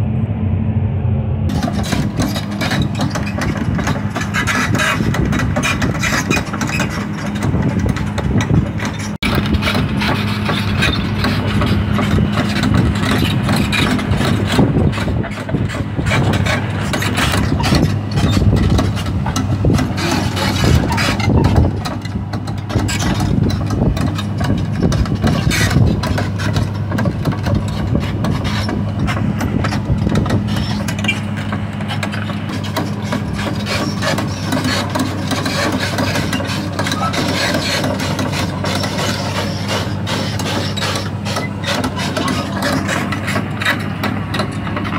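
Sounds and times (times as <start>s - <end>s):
diesel engine humming: 0.0s - 44.9s
crawler tracks moving: 1.5s - 44.9s
metal clanks: 1.5s - 44.9s.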